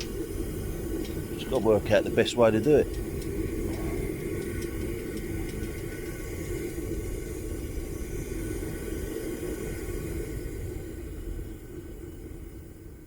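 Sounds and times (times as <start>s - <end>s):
gas burner rushing: 0.0s - 11.8s
faint ticks: 2.6s - 6.0s.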